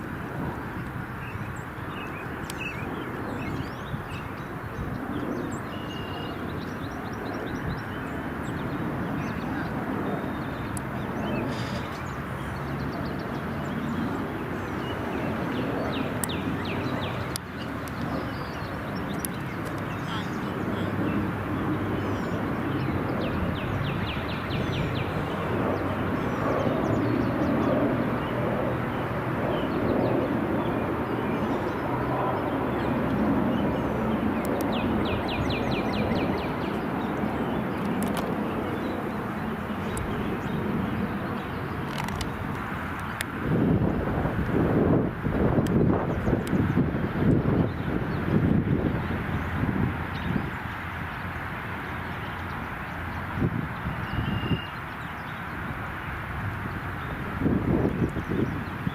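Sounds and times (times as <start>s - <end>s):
steady outdoor rumble: 0.0s - 58.9s
small bird singing: 1.2s - 42.3s, 53.8s - 55.6s.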